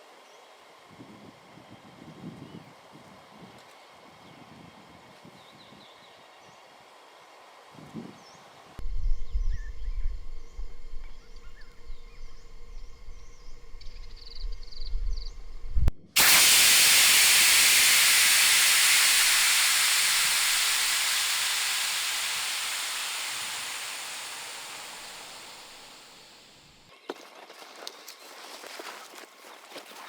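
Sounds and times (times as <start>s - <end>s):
loud hiss of escaping air: 16.2s - 26.8s.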